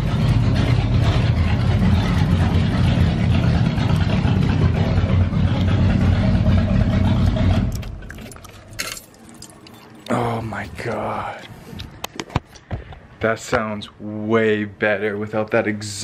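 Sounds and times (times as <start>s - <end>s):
car engine running: 0.0s - 9.1s.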